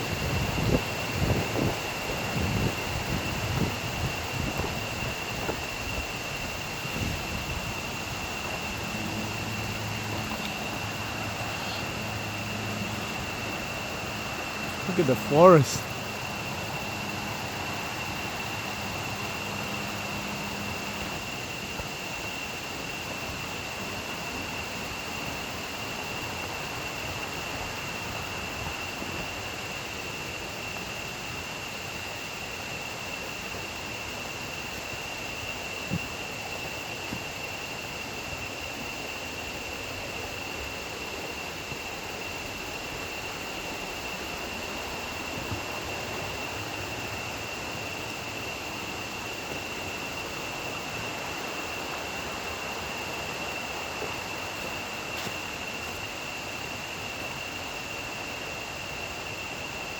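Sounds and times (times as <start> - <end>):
river water flowing: 0.0 - 31.9.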